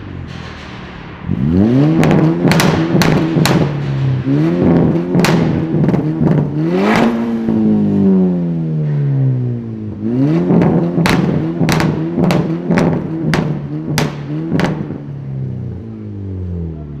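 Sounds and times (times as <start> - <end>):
sports car engine revving: 1.2 - 17.0
sharp engine cracks: 1.9 - 7.2.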